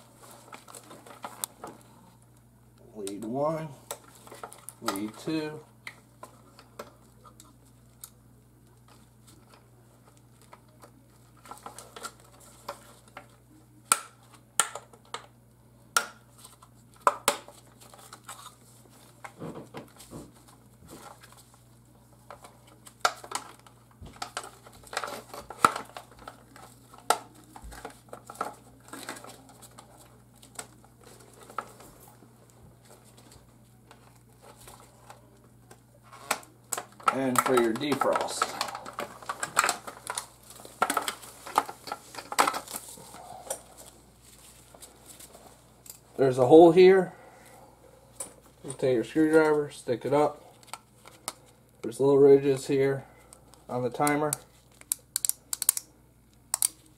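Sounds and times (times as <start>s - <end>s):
steady low hum: 0.0s - 56.9s
plastic and metal parts clicking: 54.0s - 55.9s, 56.5s - 56.8s.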